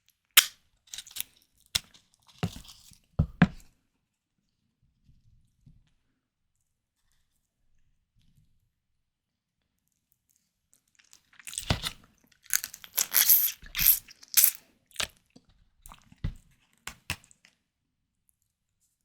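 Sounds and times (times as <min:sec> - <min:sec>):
crackling chewing: 0:11.4 - 0:15.1
crunchy bite: 0:11.4 - 0:15.1.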